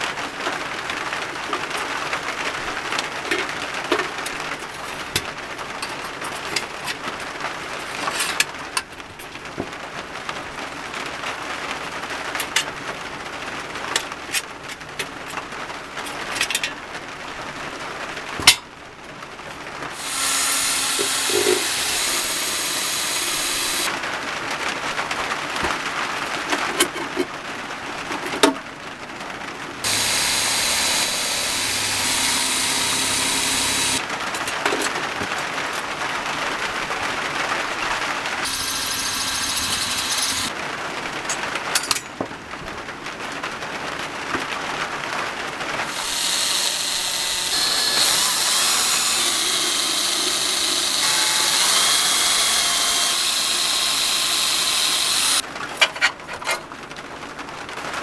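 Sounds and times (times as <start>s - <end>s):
power tools on metal: 19.9s - 23.9s, 29.8s - 34.0s, 38.4s - 40.5s, 45.8s - 55.4s.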